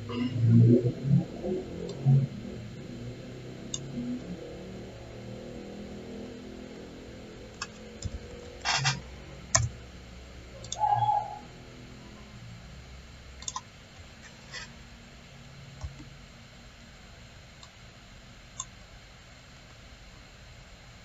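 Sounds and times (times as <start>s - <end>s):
low steady hum: 0.0s - 21.0s
computer mouse clicks: 3.7s - 3.9s, 7.6s - 9.7s, 10.6s - 11.0s, 13.4s - 13.7s.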